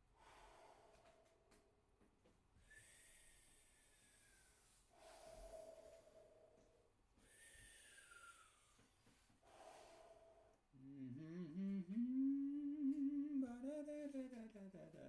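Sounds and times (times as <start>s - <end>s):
man breathing through mouth: 0.2s - 1.6s, 2.6s - 12.6s
man humming a melody: 10.8s - 15.0s.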